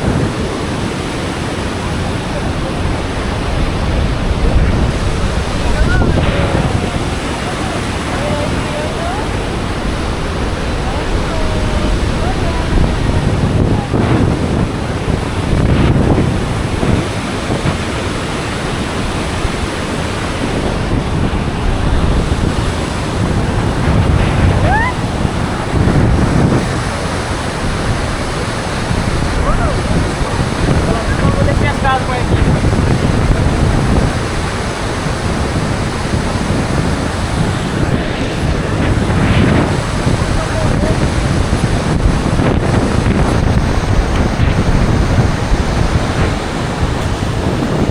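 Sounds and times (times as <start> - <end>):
waterfall roaring: 0.0 - 47.9
wind buffeting microphone: 0.0 - 47.9.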